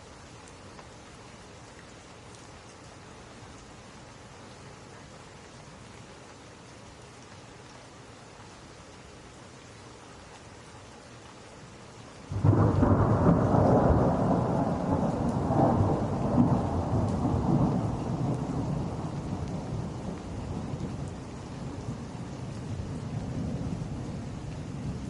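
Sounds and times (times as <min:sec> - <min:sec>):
steady rain: 0:00.0 - 0:25.0
thunder rumble: 0:12.3 - 0:25.0.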